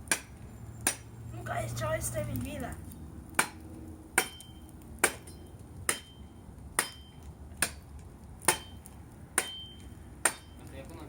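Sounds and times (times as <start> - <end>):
axe chopping firewood: 0.0 - 1.1, 3.3 - 10.7.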